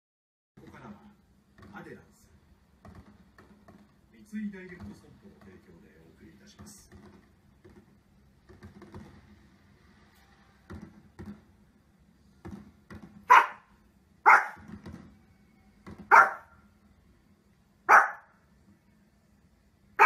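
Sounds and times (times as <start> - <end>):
small dog barking: 13.3 - 14.7, 16.1 - 16.6, 17.9 - 18.4.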